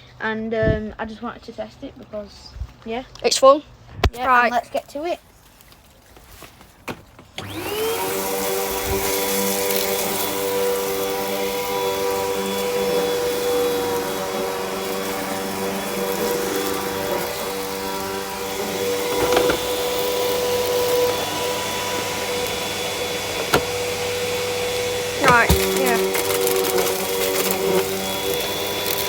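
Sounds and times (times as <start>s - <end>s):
vacuum cleaner running: 7.2s - 29.0s.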